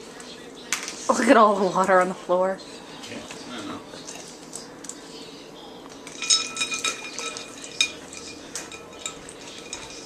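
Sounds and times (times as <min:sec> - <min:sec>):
ice cubes clinking in bowl: 0:06.1 - 0:10.0.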